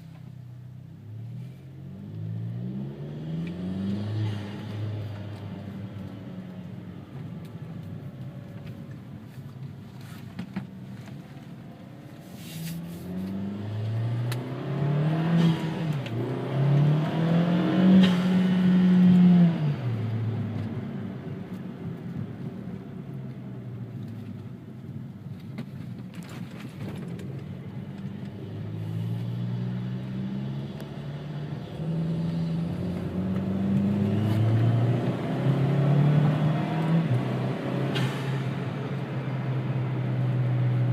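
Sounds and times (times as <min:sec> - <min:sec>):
car engine and exhaust accelerating: 0:00.6 - 0:09.0, 0:10.8 - 0:40.9.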